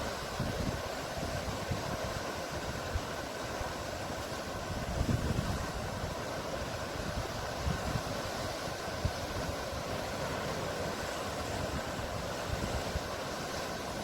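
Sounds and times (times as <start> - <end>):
sea rushing: 0.0 - 14.0
wind buffeting microphone: 4.5 - 13.1.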